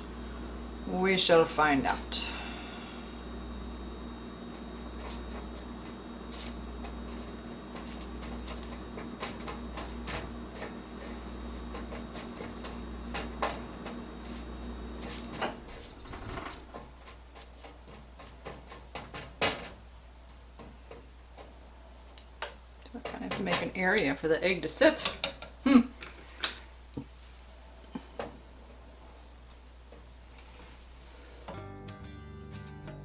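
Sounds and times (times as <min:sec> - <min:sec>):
steady hum: 0:00.0 - 0:18.3.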